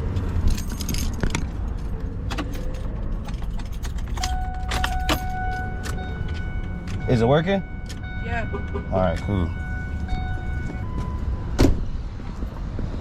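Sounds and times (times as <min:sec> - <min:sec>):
steady high tone: 0:04.3 - 0:11.5.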